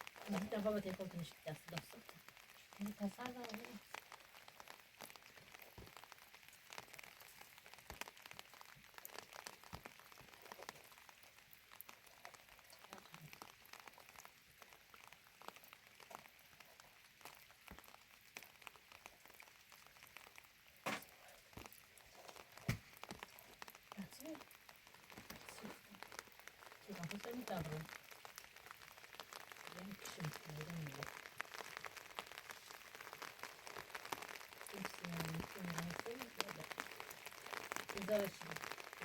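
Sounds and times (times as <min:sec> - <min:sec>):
faint rain pattering: 0:00.0 - 0:39.0.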